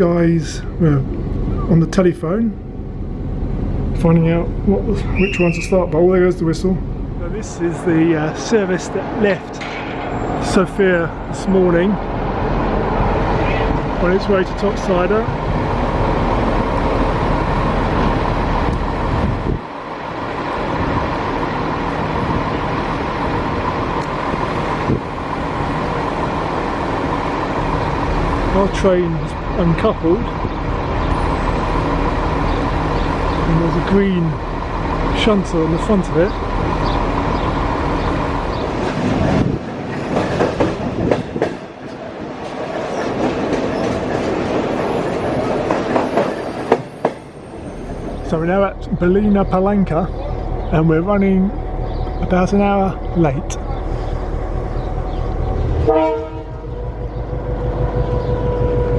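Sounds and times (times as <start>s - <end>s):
diesel locomotive rumbling: 0.0s - 58.9s
train wheels clicking over rail joints: 9.5s - 11.4s, 20.5s - 50.8s.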